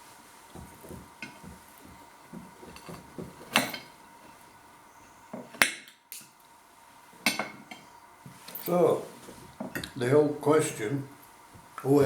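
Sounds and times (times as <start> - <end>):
cutlery clinking on a plate: 7.2 - 7.9.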